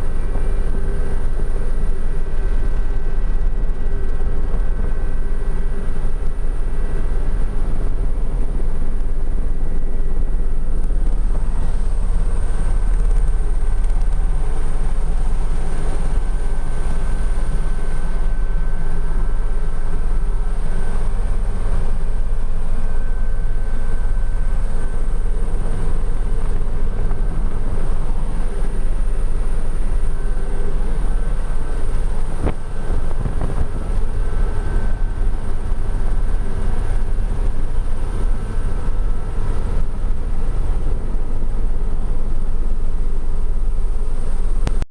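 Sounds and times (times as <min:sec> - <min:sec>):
helicopter in flight: 0:00.0 - 0:44.8.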